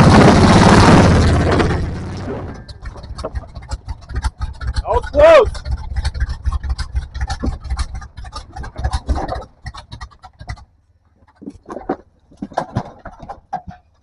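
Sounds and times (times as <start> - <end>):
engine running low: 0.0 - 14.0
tyres crunching over rock: 7.3 - 14.0.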